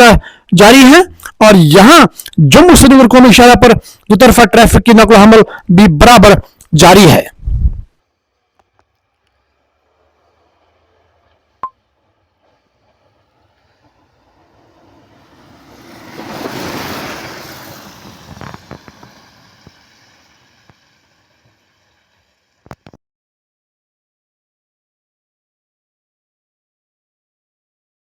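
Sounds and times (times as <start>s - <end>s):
vehicle passing by: 8.0s - 22.6s.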